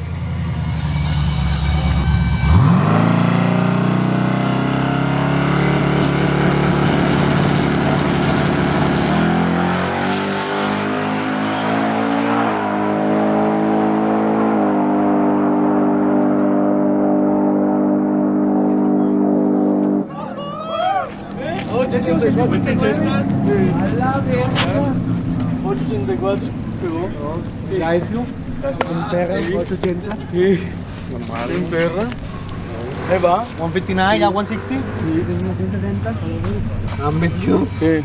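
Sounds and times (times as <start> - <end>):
truck engine accelerating: 0.0 - 38.0.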